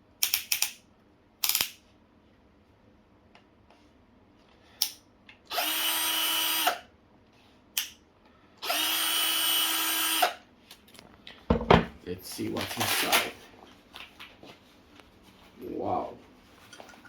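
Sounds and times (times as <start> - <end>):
cordless drill motor whine: 5.5 - 6.9, 8.6 - 10.4.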